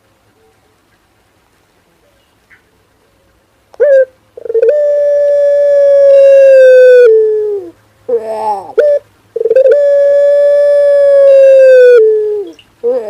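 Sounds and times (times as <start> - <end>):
dove cooing: 3.8 - 13.0.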